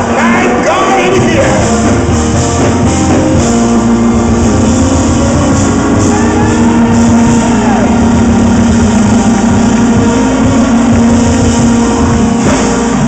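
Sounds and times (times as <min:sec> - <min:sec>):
voices singing and shouting: 0:00.0 - 0:01.8
live gospel band music: 0:00.0 - 0:13.0.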